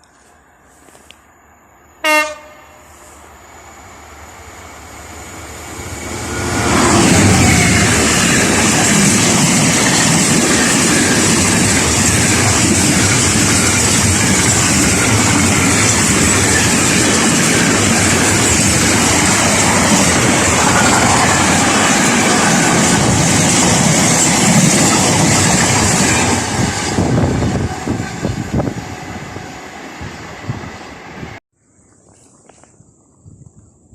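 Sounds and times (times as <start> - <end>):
train wheels rushing on rails: 2.2 - 31.4
clickety-clack of train wheels: 6.7 - 28.4.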